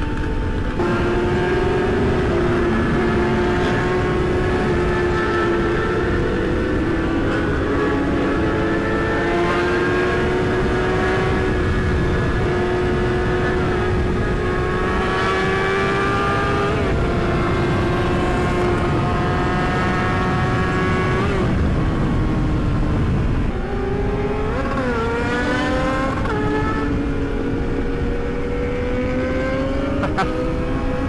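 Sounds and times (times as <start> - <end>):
motorcycle engine at high revs: 0.0 - 31.0
wind rush: 0.0 - 31.0.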